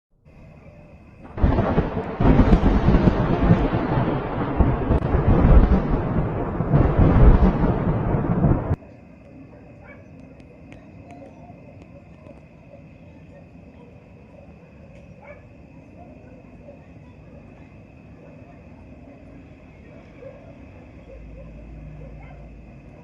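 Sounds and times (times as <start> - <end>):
thunder rumbling: 1.1 - 8.8.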